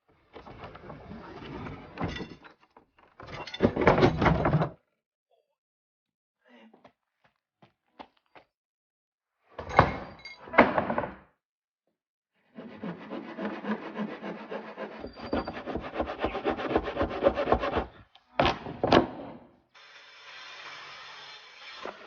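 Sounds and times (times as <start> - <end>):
rasping strokes on wood: 12.6 - 18.0.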